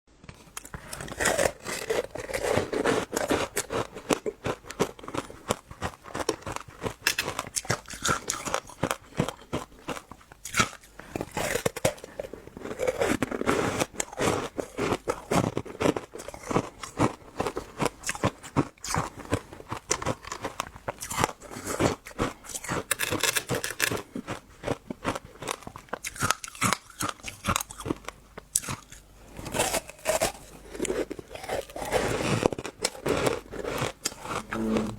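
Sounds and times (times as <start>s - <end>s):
chewing and crunching fruit: 0.3s - 34.9s.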